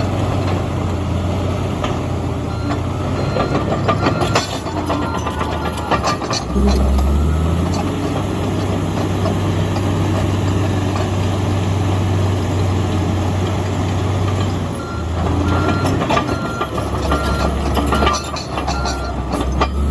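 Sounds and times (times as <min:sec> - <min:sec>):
bulldozer diesel engine running: 0:00.0 - 0:19.9
reversing alarm beeping: 0:02.5 - 0:07.6, 0:14.8 - 0:19.9.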